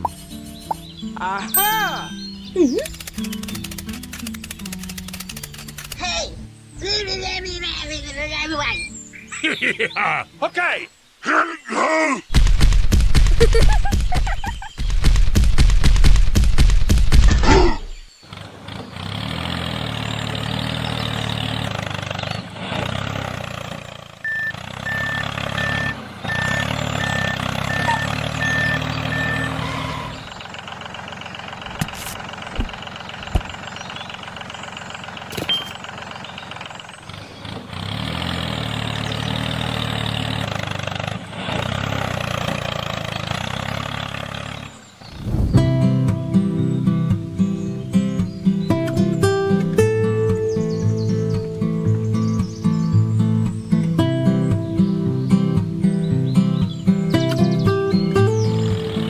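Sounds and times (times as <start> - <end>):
vehicle engine running: 0.0 - 9.6, 12.3 - 59.0
short beeps: 24.2 - 30.1, 35.5 - 35.8.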